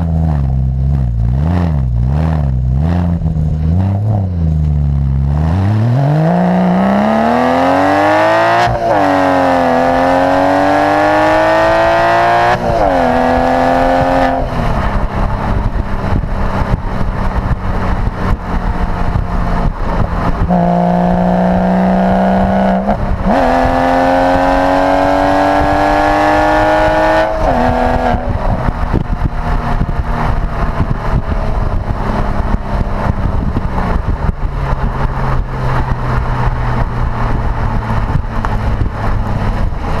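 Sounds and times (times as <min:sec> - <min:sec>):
car engine accelerating: 0:00.0 - 0:40.0
road noise: 0:00.0 - 0:40.0.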